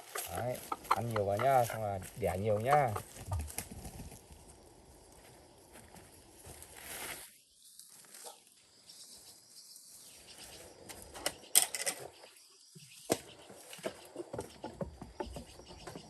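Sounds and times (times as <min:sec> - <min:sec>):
birds pecking and tapping: 0:00.0 - 0:04.2, 0:13.1 - 0:16.0.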